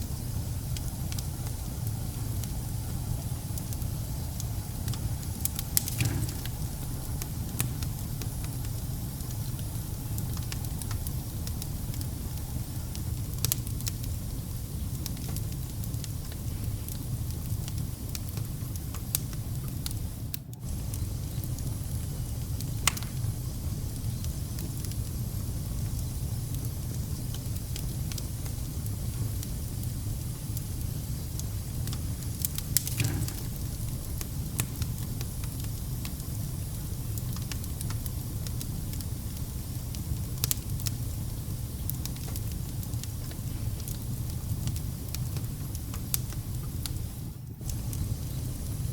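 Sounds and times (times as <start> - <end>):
fire crackles and pops: 0.0 - 48.9
fire rumbling: 0.0 - 48.9.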